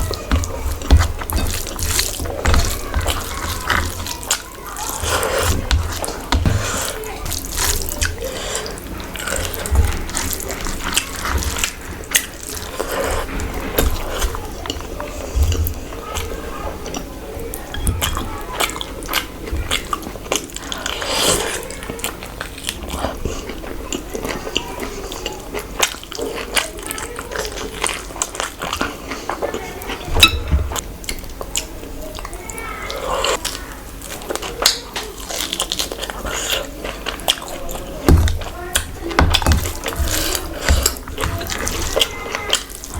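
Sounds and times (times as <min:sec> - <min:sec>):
wet chewing and slurping: 0:00.0 - 0:42.9.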